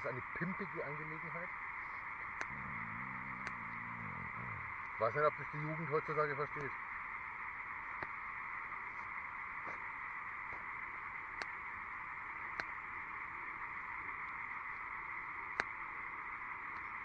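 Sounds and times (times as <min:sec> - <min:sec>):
frogs calling: 0:00.0 - 0:17.0
wood fire popping: 0:01.8 - 0:05.8, 0:07.5 - 0:15.8.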